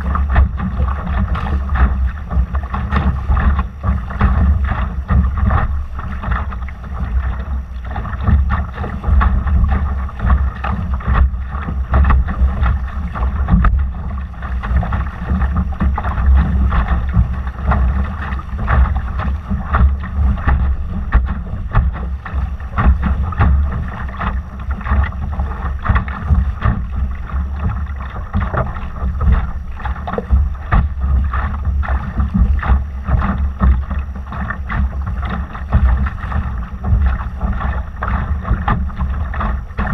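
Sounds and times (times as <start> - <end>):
water splashing around a boat: 0.0 - 39.9
wind rumble on microphone: 0.0 - 39.9.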